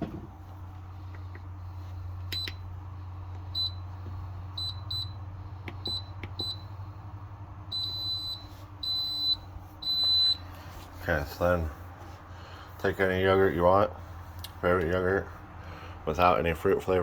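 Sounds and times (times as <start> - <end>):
appliance beeping: 2.2 - 2.8, 3.4 - 6.7, 7.7 - 10.8.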